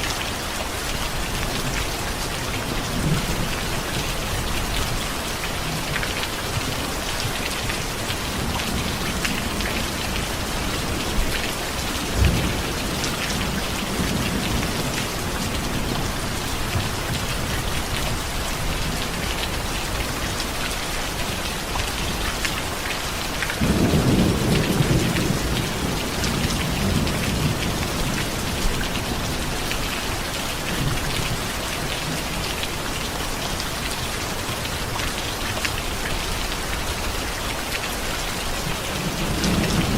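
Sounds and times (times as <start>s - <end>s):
heavy rain: 0.0s - 39.9s
thunder rumbling: 23.6s - 29.8s.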